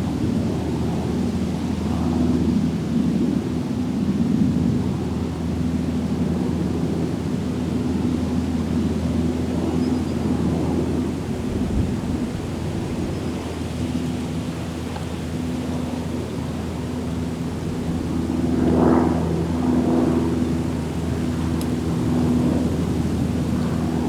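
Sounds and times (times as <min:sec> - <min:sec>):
faint high bird chirps: 0:09.8 - 0:10.2.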